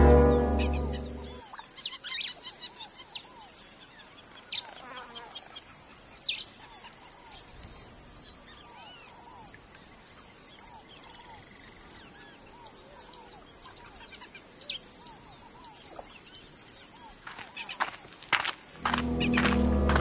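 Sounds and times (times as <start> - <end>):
steady high-pitched drone: 0.0 - 1.4, 18.8 - 20.0.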